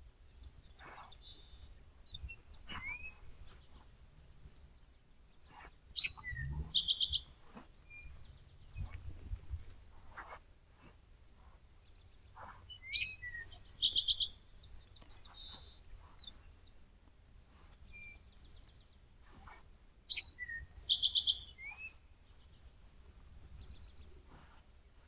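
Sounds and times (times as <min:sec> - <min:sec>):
songbird whistling and trilling: 0:00.7 - 0:03.9, 0:05.5 - 0:09.0, 0:12.7 - 0:16.7, 0:17.6 - 0:18.8, 0:20.1 - 0:22.7.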